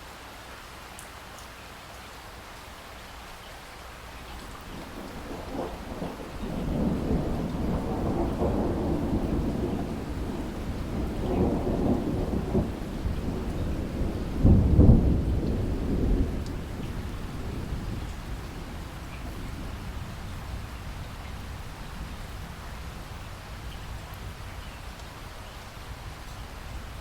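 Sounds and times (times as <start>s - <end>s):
steady rain: 0.0s - 27.0s
thunder rumbling: 4.6s - 24.4s.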